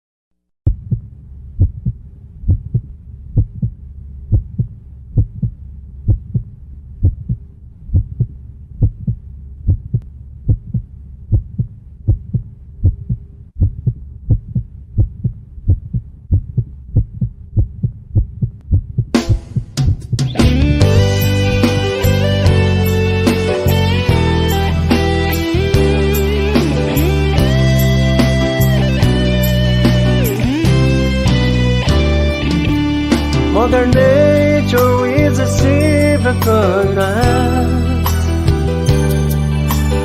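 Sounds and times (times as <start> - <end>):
heartbeat thumps: 0.6 - 21.1
low drone: 20.4 - 40.0.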